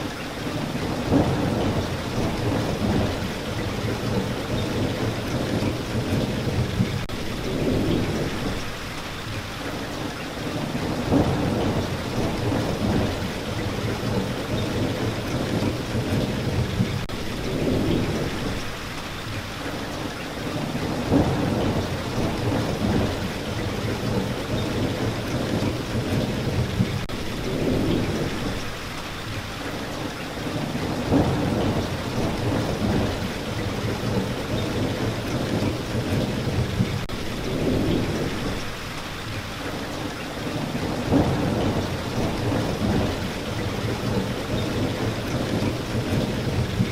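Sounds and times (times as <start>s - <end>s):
steady rain: 0.0s - 46.9s
thunder rumbling: 0.4s - 8.9s, 10.5s - 18.8s, 20.5s - 28.8s, 30.4s - 39.0s, 40.4s - 46.9s.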